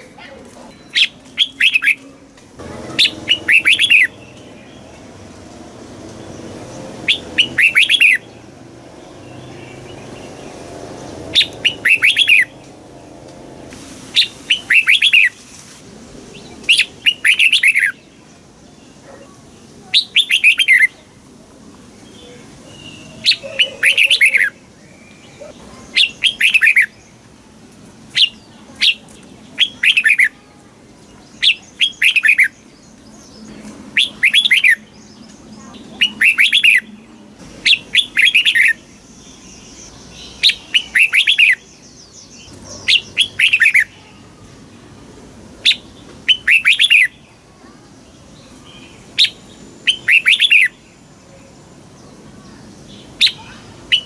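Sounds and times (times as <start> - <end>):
bulbul singing whistled notes: 49.2 - 50.8.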